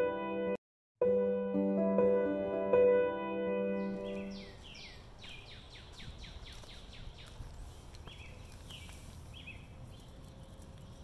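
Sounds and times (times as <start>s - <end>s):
songbird singing whistled notes: 3.8s - 7.4s, 8.0s - 10.2s
faint low outdoor rumble: 5.0s - 11.0s.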